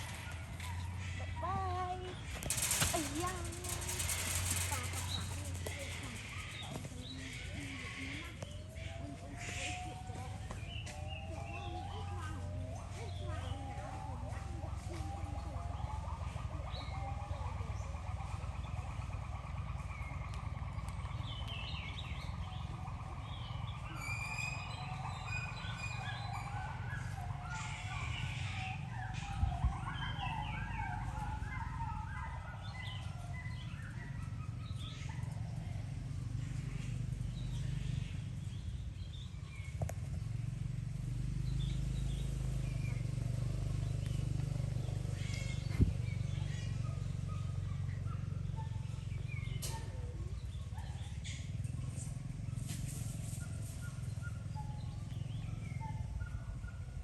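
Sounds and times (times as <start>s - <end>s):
steady low rumble: 0.0s - 10.8s
animals chirping and squeaking: 0.0s - 57.0s.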